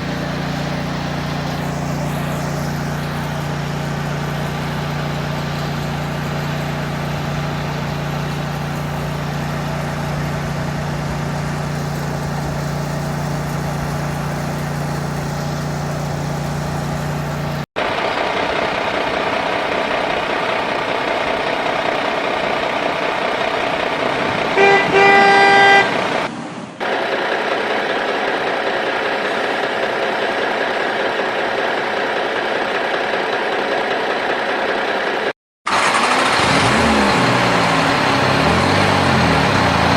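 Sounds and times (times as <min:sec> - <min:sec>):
vehicle engine running: 0:00.0 - 0:39.9
vehicle horn: 0:24.6 - 0:26.0.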